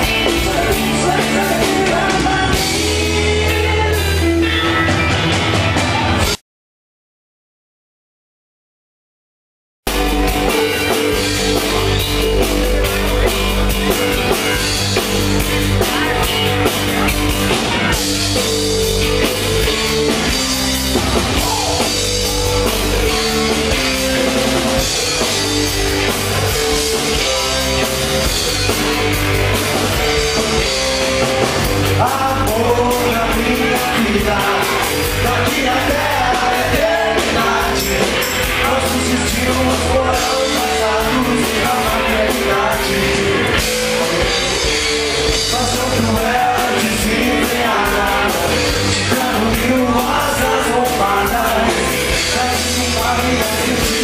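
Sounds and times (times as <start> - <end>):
person singing: 0.0 - 4.8, 31.8 - 54.0
rock band playing live: 0.0 - 6.4, 9.9 - 54.0.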